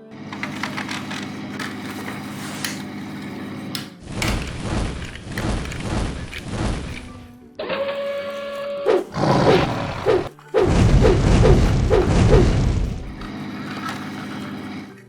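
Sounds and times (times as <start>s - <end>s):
dragon fire breath rushing: 9.0s - 13.2s.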